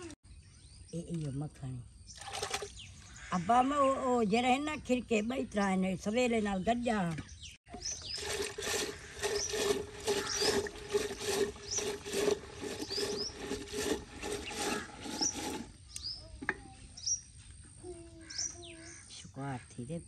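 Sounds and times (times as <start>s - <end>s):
small bird chirping: 6.9s - 8.3s, 15.2s - 19.2s.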